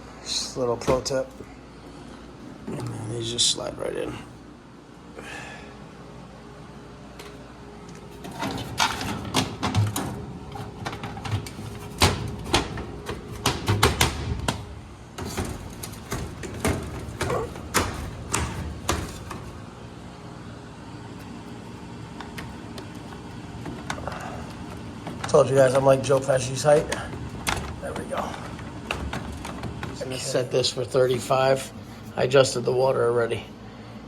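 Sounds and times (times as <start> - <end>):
sheet metal and cardboard clattering: 8.1 - 19.8, 21.2 - 32.0.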